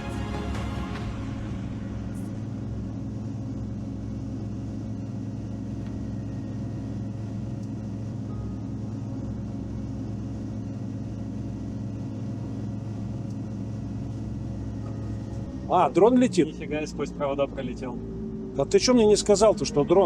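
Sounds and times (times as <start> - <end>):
background music: 0.0 - 3.4, 14.8 - 20.0
vehicle engine droning: 0.0 - 20.0.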